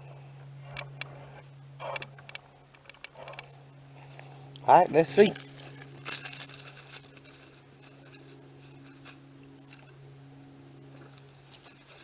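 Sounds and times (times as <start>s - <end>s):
steady low hum: 0.0s - 12.0s
chickens scratching and rustling: 4.9s - 12.0s.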